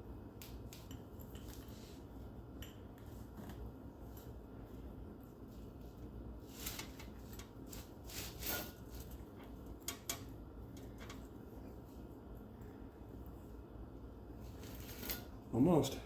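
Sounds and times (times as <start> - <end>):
metal tool scraping: 7.7 - 9.1, 14.6 - 15.4.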